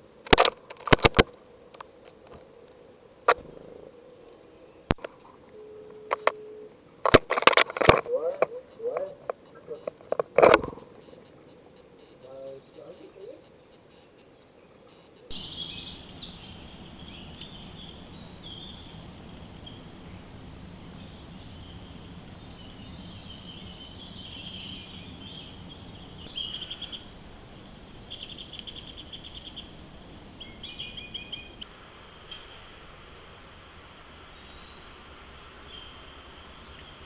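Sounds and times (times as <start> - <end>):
low background noise: 0.0 - 37.0
small birds chirping: 8.1 - 32.7, 34.2 - 37.0.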